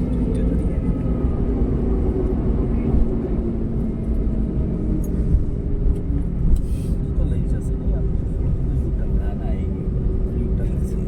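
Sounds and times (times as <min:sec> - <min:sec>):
faint engine hum: 0:00.0 - 0:11.0
vehicle rumble: 0:00.0 - 0:11.0.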